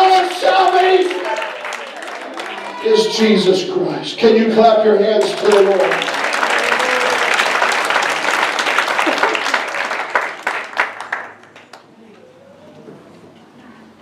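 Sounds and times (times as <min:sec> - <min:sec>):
congregation applauding: 0:00.0 - 0:03.4, 0:05.2 - 0:11.9.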